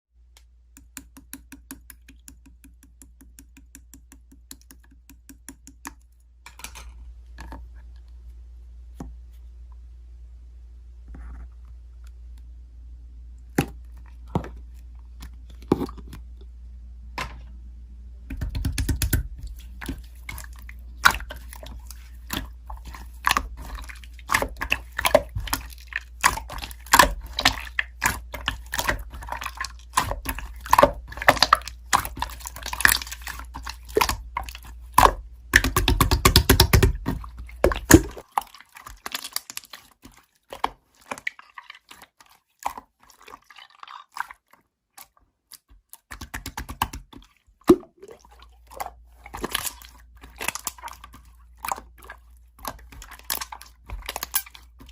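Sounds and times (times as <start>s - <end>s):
low background hum: 0.2s - 54.9s
slime squishing and popping: 18.3s - 44.4s, 46.0s - 54.9s.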